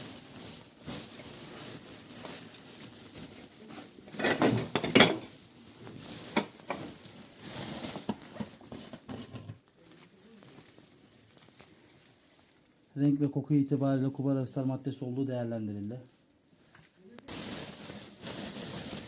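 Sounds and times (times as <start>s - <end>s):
soft rustling: 0.0s - 13.8s, 16.0s - 19.0s
household objects clattering: 3.7s - 5.4s, 6.0s - 9.6s.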